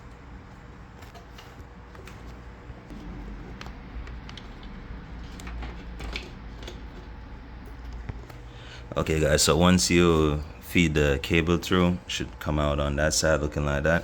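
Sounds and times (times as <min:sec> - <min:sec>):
low steady rumble: 0:02.8 - 0:14.0.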